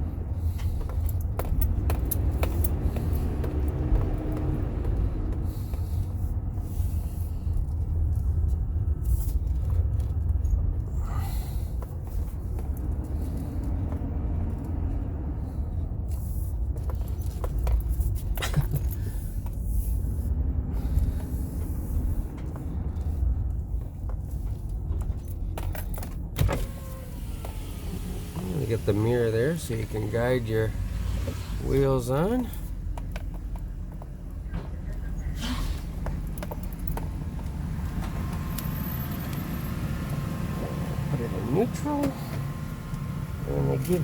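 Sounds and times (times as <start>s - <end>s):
car engine and road rumble: 0.0s - 44.0s.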